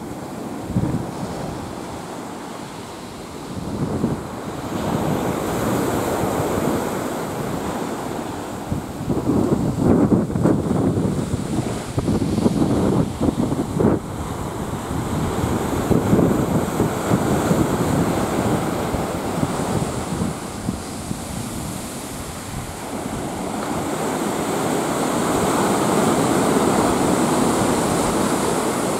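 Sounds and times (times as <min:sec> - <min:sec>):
surf washing onto beach: 0:00.0 - 0:28.9
wind buffeting microphone: 0:00.0 - 0:28.9.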